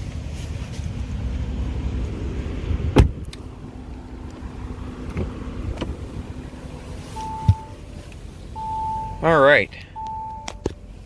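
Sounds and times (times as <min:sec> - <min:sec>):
low rumble: 0:00.8 - 0:09.2
car door shutting thud: 0:02.9 - 0:03.3, 0:05.0 - 0:06.0, 0:07.2 - 0:07.8.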